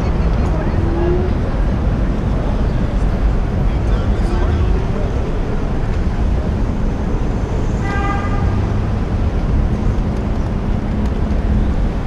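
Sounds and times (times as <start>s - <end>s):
street traffic rumble: 0.0s - 12.0s
car horn honk: 7.8s - 8.6s.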